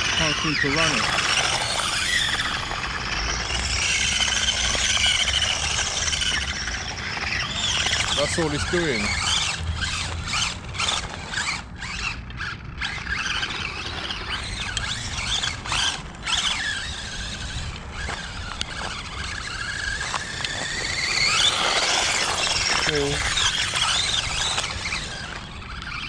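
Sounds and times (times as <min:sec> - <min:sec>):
toy truck motor whining: 0:00.0 - 0:26.0
wheels spinning on wet ground: 0:00.0 - 0:26.0.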